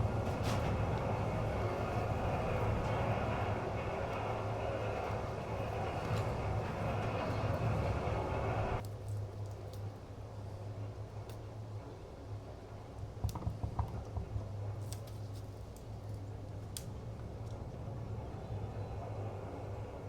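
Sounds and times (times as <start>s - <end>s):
machine humming and rushing: 0.0s - 8.8s.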